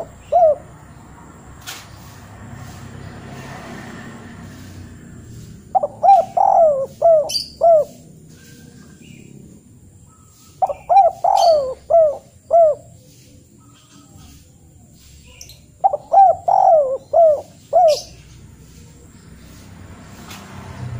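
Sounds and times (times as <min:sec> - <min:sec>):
bird calling: 0:00.0 - 0:01.0, 0:05.6 - 0:09.4, 0:10.0 - 0:19.2.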